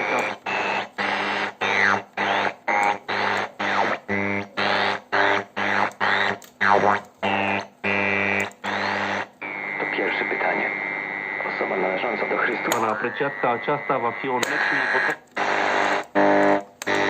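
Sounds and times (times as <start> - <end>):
radio static bursts: 0.0 - 17.0
steady radio buzz: 0.0 - 17.0
gliding radio whistles: 9.4 - 15.2.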